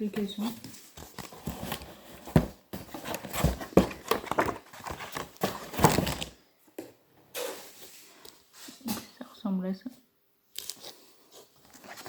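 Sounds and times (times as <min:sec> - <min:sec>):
wrapping crackling and rustling: 0:00.0 - 0:06.4, 0:10.6 - 0:12.0.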